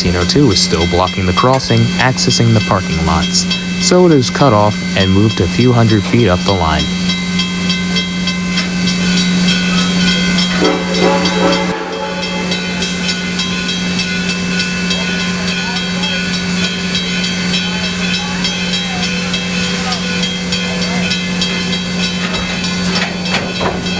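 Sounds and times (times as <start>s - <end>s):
steady tone: 0.0s - 17.6s
steam locomotive hissing: 0.0s - 23.9s.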